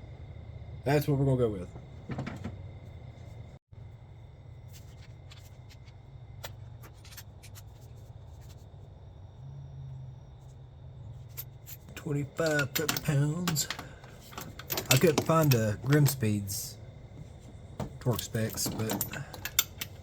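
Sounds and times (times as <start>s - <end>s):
steady low hum: 0.0s - 20.0s
hand tools clicking and rustling: 11.7s - 20.0s.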